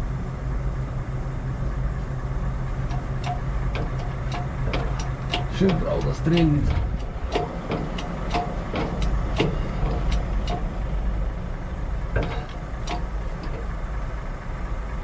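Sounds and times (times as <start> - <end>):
engine idling rumble: 0.0 - 15.0
light metallic clicks: 2.8 - 10.9, 12.2 - 13.8.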